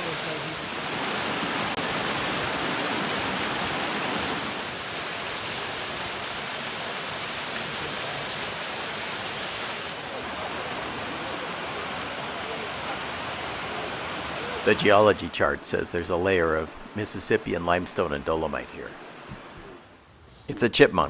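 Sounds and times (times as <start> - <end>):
waterfall rushing water: 0.0 - 19.9.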